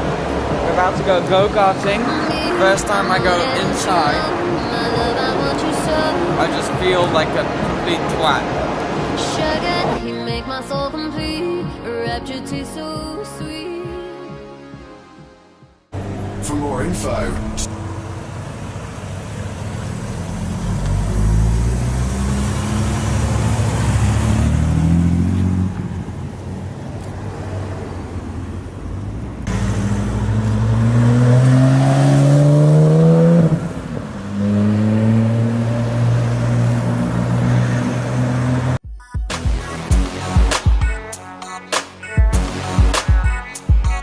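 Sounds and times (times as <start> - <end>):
go-kart engine accelerating: 16.0 - 38.8.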